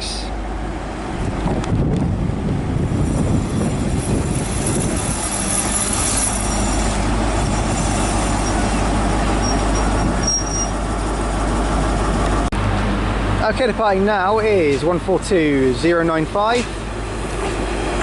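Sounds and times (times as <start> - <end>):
diesel train rumbling: 0.0 - 18.0
brake squeals: 2.9 - 11.3.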